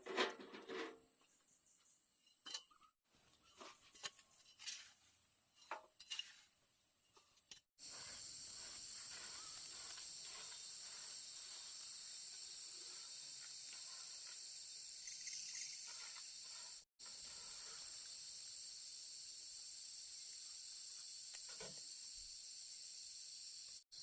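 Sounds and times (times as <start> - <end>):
insect chorus: 7.8 - 24.0.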